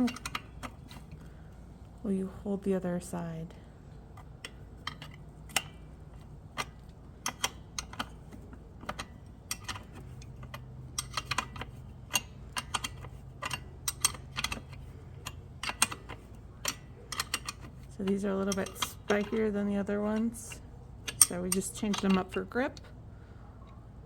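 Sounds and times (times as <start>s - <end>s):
wrench clinking on metal: 0.0s - 1.2s, 4.2s - 22.6s
faint low hum: 0.0s - 24.0s.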